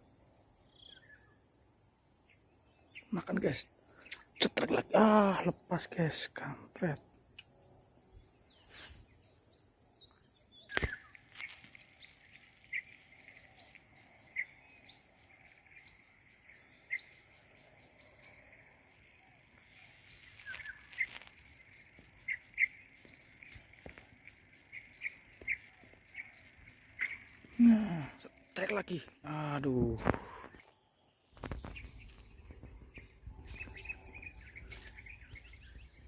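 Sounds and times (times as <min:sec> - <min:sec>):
high insect drone: 0:00.0 - 0:36.0
bird chirping: 0:00.6 - 0:36.0.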